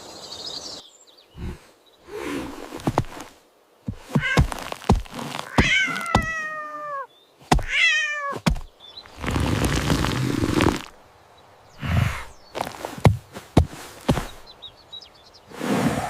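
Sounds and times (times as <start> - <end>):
noisy rustling: 1.4 - 16.0
sharp thumps and knocks: 2.6 - 6.5, 7.4 - 7.8, 8.4 - 9.9, 12.6 - 14.4
cat meowing: 4.2 - 4.5, 5.4 - 8.4.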